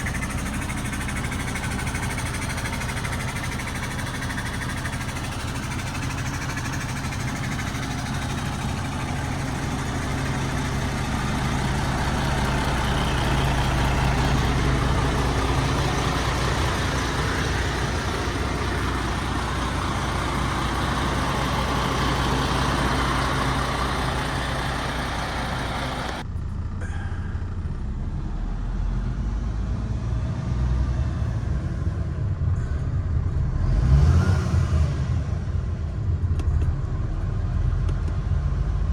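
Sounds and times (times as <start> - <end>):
diesel engine idling: 0.0 - 29.8.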